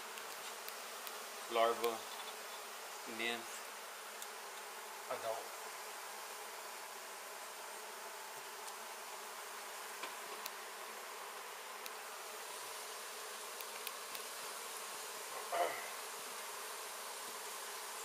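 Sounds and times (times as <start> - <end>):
bees buzzing: 0.0 - 18.0
faint clicks: 13.6 - 14.3.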